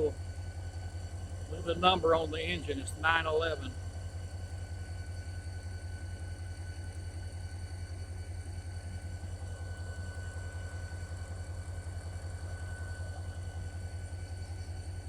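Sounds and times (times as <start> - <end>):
locomotive engine idling: 0.0 - 0.7, 1.3 - 3.9
thin steady whine: 0.0 - 5.9.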